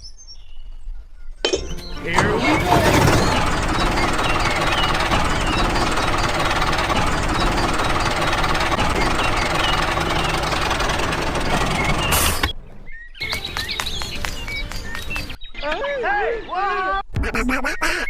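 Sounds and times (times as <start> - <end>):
motor running with rattling pulse: 1.7 - 12.9
bird-like chirps: 3.6 - 15.8.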